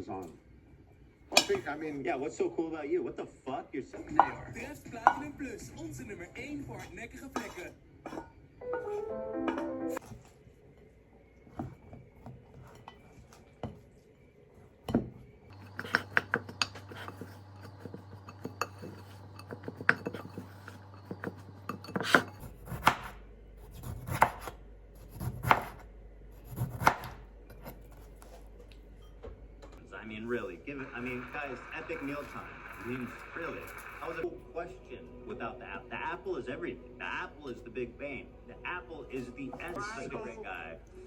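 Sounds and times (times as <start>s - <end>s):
utensils and dishes clinking: 1.3s - 1.7s, 14.9s - 22.5s.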